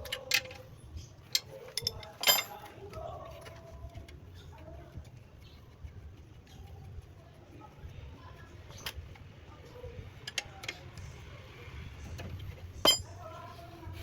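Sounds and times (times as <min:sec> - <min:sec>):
faint background voices: 0:00.0 - 0:14.0
sharp knocks and clinks: 0:01.3 - 0:02.7, 0:12.8 - 0:13.1.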